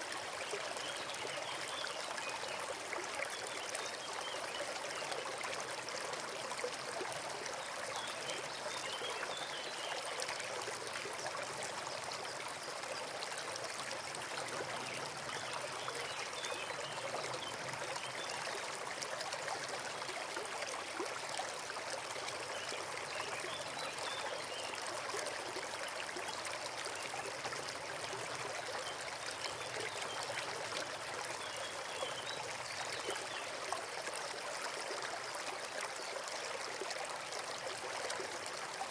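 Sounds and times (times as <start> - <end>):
stream water trickling: 0.0 - 38.9.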